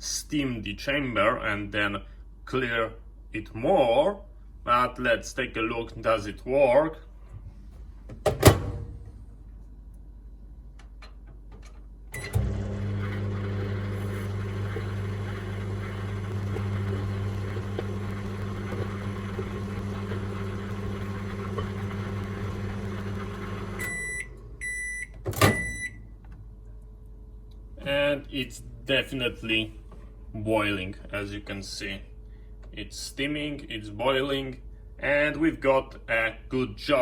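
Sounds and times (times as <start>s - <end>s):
microwave humming: 12.1s - 26.5s
microwave beeps: 12.2s - 26.1s.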